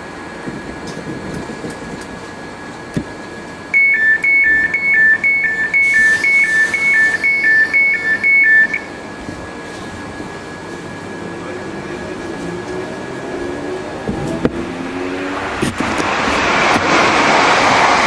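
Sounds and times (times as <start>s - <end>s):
two-tone warning beeps: 3.7s - 9.0s
faint steady tone: 3.7s - 9.1s.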